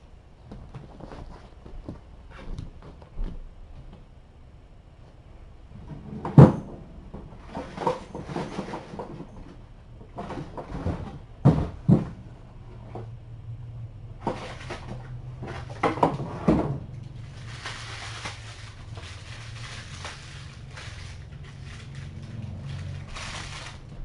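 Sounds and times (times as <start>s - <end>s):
knocks and clatter: 5.8s - 13.1s
low hum: 11.0s - 24.0s
steady rustle: 17.0s - 24.0s.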